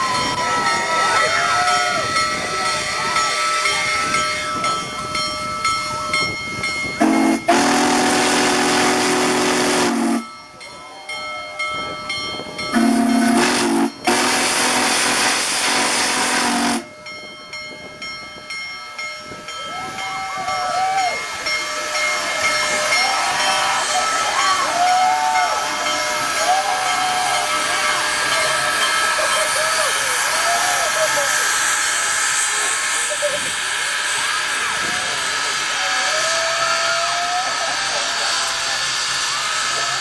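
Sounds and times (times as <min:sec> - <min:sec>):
steam locomotive chime whistle: 0:00.0 - 0:40.0
steady steam hiss: 0:12.7 - 0:16.8, 0:20.7 - 0:40.0.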